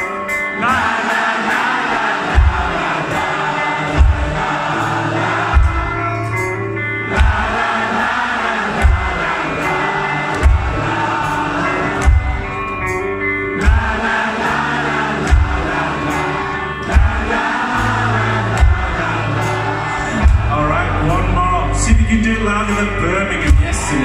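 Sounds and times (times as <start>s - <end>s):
live rock band playing: 0.0s - 24.0s
heavy kick drum beat: 2.3s - 3.2s, 3.9s - 4.7s, 5.4s - 6.2s, 7.1s - 7.8s, 8.7s - 9.5s, 10.3s - 11.2s, 12.0s - 12.6s, 13.6s - 14.2s, 15.3s - 15.9s, 16.9s - 19.4s, 20.1s - 20.6s, 21.8s - 22.4s, 23.4s - 24.0s
person singing: 13.6s - 24.0s.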